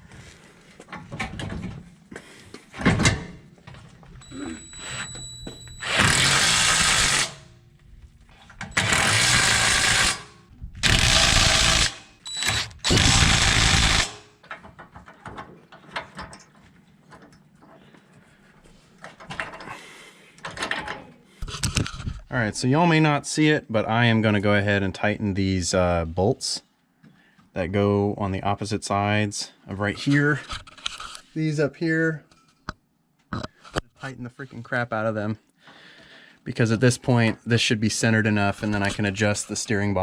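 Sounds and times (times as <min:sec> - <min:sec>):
power tool running in bursts: 0:05.8 - 0:07.4, 0:08.8 - 0:14.2.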